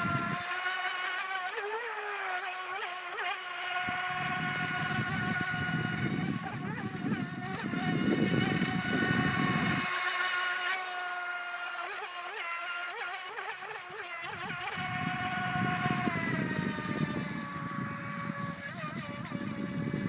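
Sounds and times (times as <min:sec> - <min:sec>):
rc boat motor whining: 0:00.0 - 0:20.0.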